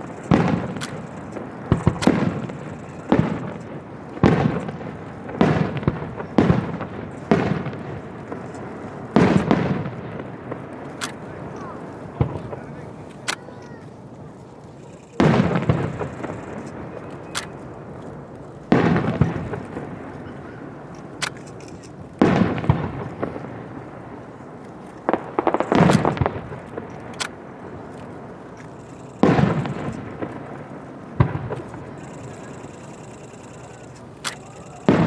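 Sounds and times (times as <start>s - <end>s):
fireworks booming: 0.0s - 35.0s
thin sharp cracks: 0.2s - 2.3s, 10.8s - 18.9s, 20.9s - 22.4s, 24.2s - 30.0s, 33.7s - 35.0s.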